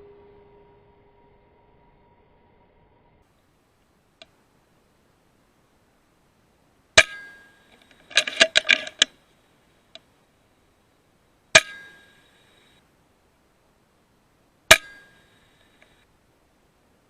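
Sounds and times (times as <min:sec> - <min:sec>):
air rifle shot with metallic ring: 0:07.0 - 0:09.1, 0:11.6 - 0:12.2, 0:14.7 - 0:15.2
rifle lever clicks and clacks: 0:07.7 - 0:09.1.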